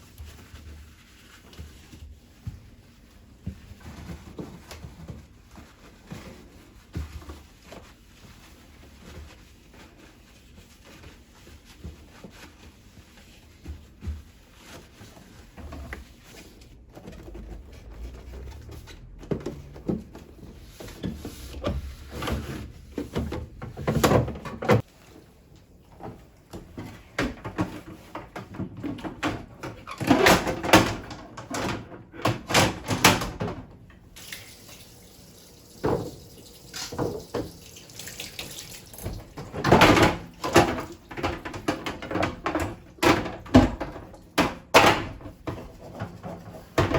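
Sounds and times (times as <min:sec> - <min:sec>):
cloth rubbing with squeaks: 0:07.5 - 0:19.8
plastic shelves and containers knocking: 0:16.8 - 0:24.8, 0:25.9 - 0:33.9, 0:39.0 - 0:46.9.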